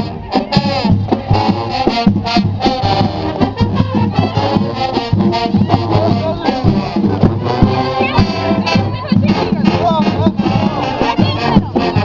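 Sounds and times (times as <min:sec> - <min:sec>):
brass playing tune: 0:00.0 - 0:12.0
marching drums beat: 0:00.0 - 0:12.0.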